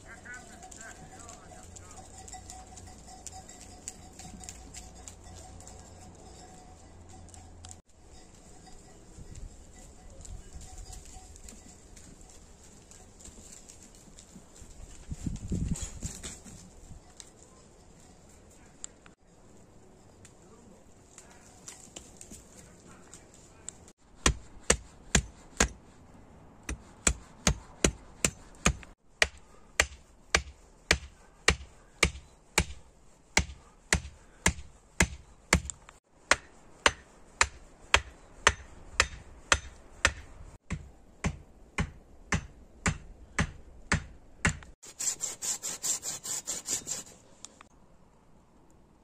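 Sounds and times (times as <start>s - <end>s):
steady hammering: 24.2s - 25.8s, 26.6s - 47.0s.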